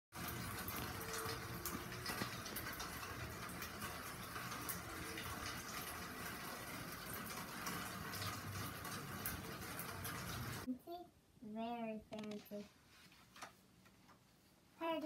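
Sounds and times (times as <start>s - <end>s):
drips ticking: 0.2s - 10.7s.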